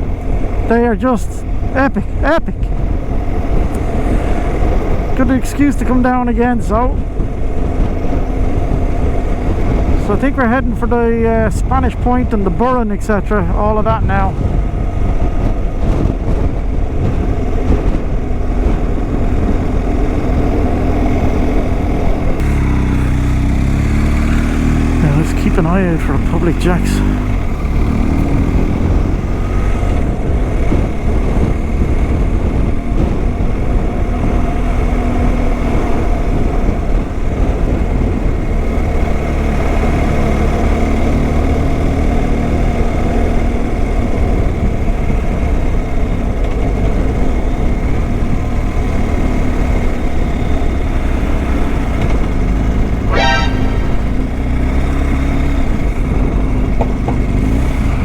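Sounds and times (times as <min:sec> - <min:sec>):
motorcycle engine running: 0:14.4 - 0:34.5.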